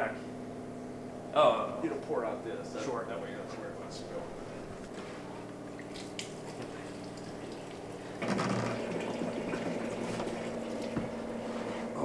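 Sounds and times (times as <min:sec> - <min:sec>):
pump humming: 0:04.4 - 0:12.0
liquid running into container: 0:05.7 - 0:11.4.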